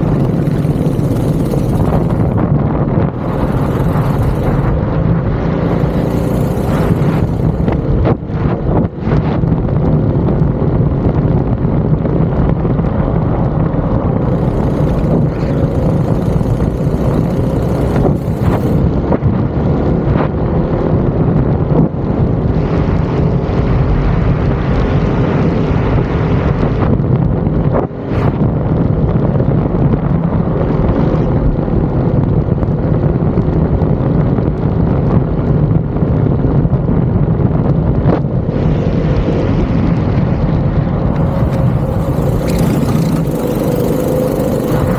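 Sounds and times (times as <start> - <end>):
go-kart engine revving: 0.0 - 8.3, 13.9 - 19.2, 41.0 - 44.9.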